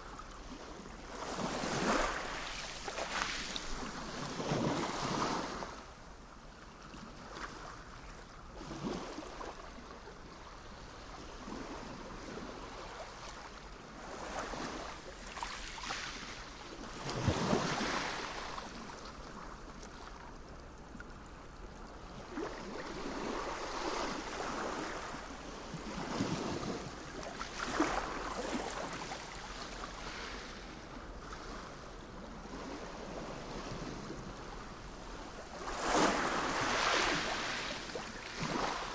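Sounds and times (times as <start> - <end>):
sea waves breaking ashore: 14.1 - 19.0, 22.4 - 31.8, 32.4 - 38.9.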